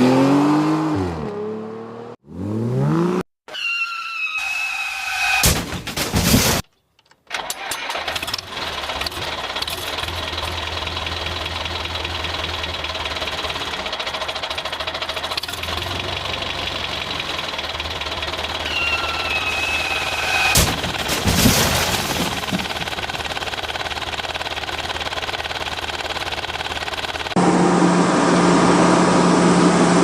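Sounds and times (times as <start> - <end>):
engine idling: 7.9 - 21.3, 22.0 - 27.4.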